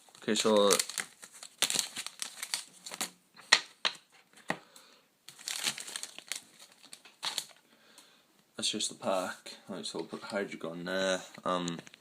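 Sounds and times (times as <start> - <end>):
plastic wrapping crinkling: 0.0 - 3.7, 5.3 - 7.6.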